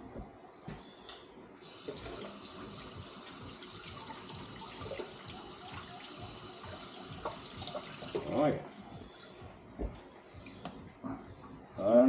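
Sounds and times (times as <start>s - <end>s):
tap running into sink: 6.7s - 8.4s.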